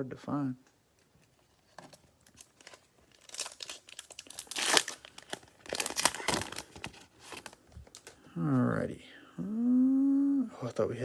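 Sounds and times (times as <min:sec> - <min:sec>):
cellophane wrapper crinkling and tearing: 0:00.9 - 0:08.3.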